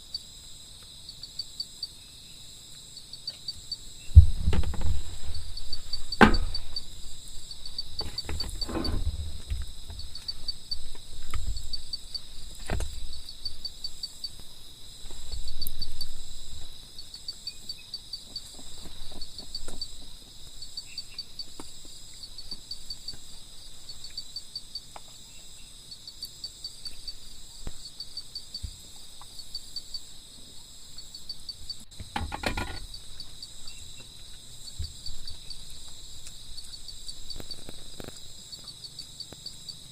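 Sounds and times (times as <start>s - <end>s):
insects chirping in chorus: 0.0s - 39.9s
knocks and thumps: 4.1s - 7.0s, 7.9s - 10.3s, 12.6s - 13.1s, 31.9s - 32.9s.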